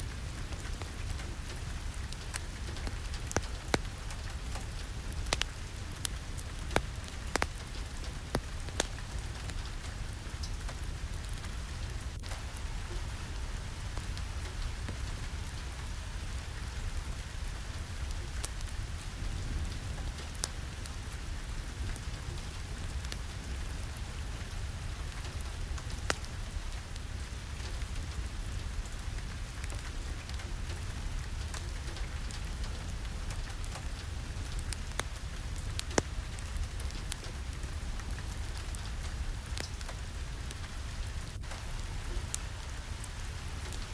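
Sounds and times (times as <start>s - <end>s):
rain falling on a surface: 0.0s - 43.9s
sharp ticks and cracks: 0.2s - 12.5s, 27.6s - 43.9s.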